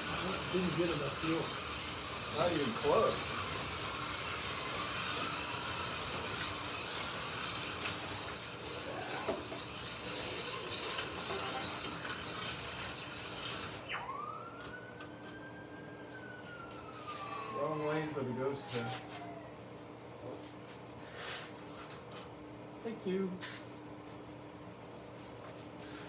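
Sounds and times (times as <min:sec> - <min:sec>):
slot car motors whirring: 0:00.0 - 0:14.8
slot car motor whine: 0:00.0 - 0:15.6.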